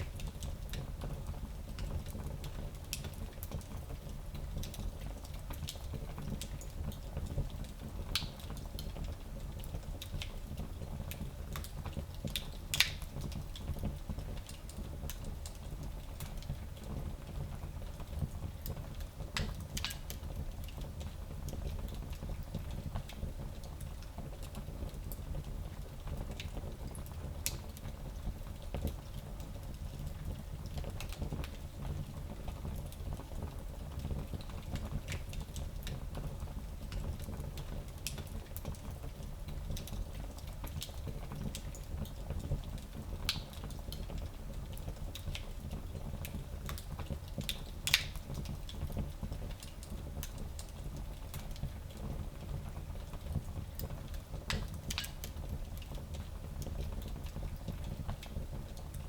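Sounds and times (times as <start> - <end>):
fireplace fire crackling: 0.0 - 59.0.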